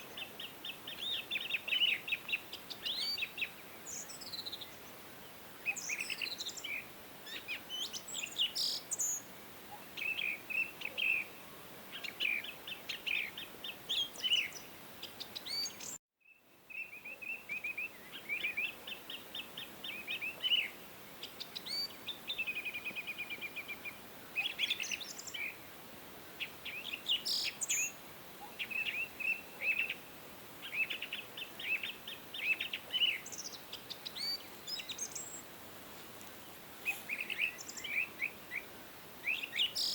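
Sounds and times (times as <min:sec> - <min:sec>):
songbirds singing and chirping: 0:00.0 - 0:25.8, 0:26.4 - 0:35.5, 0:36.2 - 0:39.9
steady background hiss: 0:00.0 - 0:39.9.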